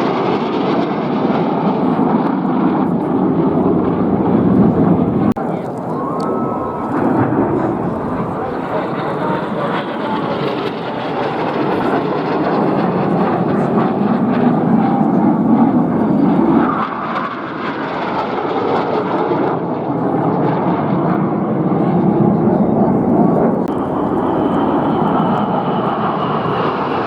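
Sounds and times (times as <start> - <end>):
aircraft engine droning: 0.0 - 27.0.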